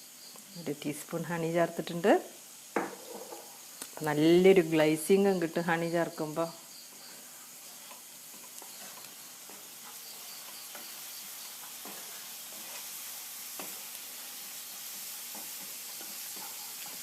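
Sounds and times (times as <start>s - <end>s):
food sizzling in oil: 0.0s - 17.0s
spoon stirring and clicking on pan: 7.8s - 12.9s, 15.3s - 17.0s.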